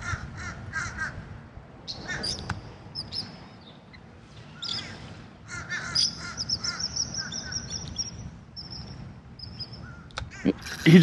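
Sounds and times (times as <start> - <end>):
bird calling: 1.9 - 3.8, 4.4 - 11.0
rapid high bird chirps: 5.9 - 10.9.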